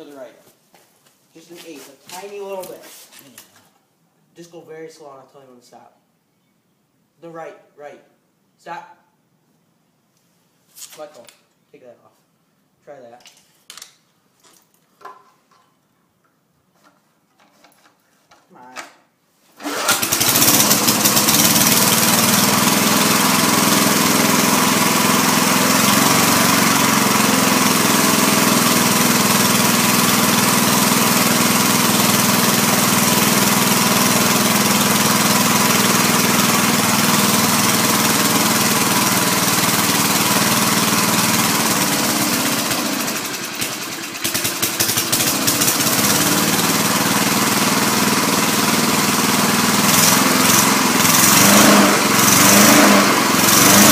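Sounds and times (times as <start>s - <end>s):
lawn mower engine running: 19.6s - 53.9s.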